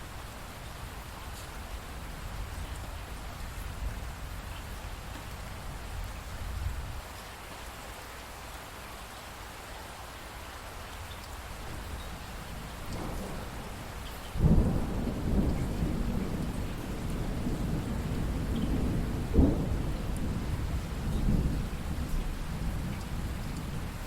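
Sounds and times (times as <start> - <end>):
steady rain: 0.0 - 24.0
thunder rumbling: 11.7 - 24.0
thunder clap: 12.8 - 23.9.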